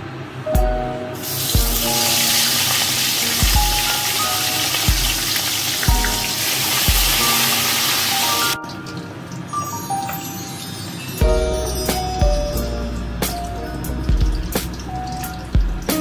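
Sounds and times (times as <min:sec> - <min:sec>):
background music with low beat: 0:00.5 - 0:02.0, 0:03.4 - 0:04.1, 0:04.9 - 0:05.3, 0:05.9 - 0:07.3, 0:11.2 - 0:16.0
fish sizzling in hot oil: 0:01.2 - 0:09.6.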